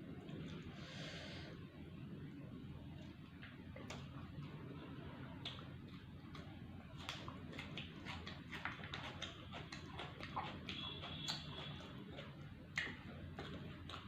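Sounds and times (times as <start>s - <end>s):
chewing and crunching food: 2.9s - 14.0s.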